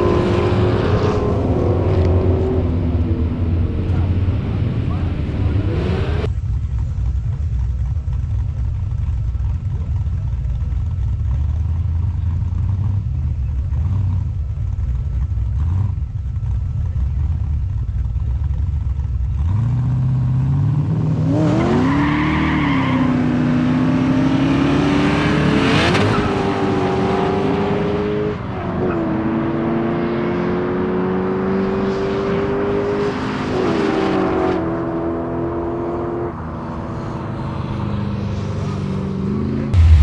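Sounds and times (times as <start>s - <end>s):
drag car engines accelerating: 0.0s - 6.3s, 19.3s - 40.0s.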